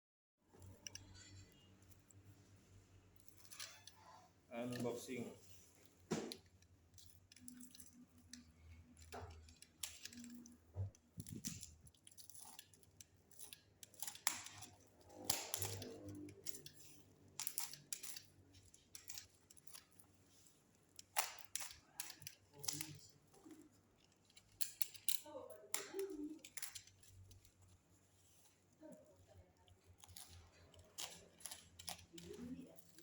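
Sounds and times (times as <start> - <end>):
packaging being cut and torn: 11.1 - 19.9, 29.8 - 33.0.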